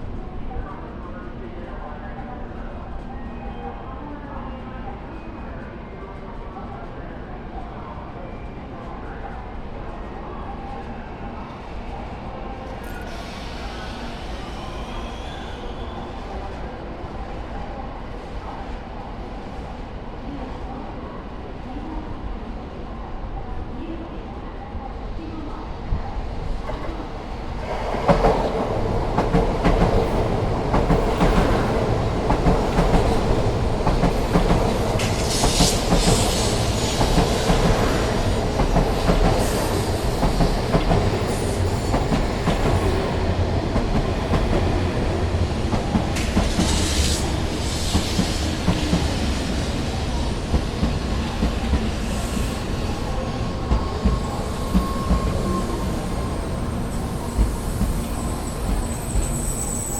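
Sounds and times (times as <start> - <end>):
train hissing: 12.8 - 16.3, 26.7 - 59.9
train running noise: 25.4 - 59.9
brake squeal: 57.6 - 59.9.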